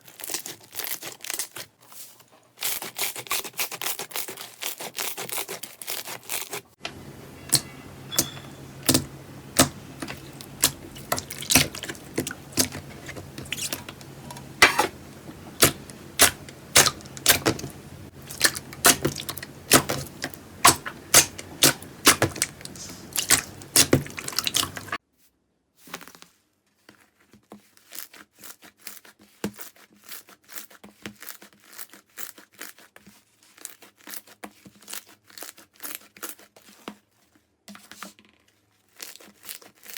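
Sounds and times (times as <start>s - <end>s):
faint steady hum: 6.8s - 25.0s
slime popping and crackling: 7.5s - 25.0s.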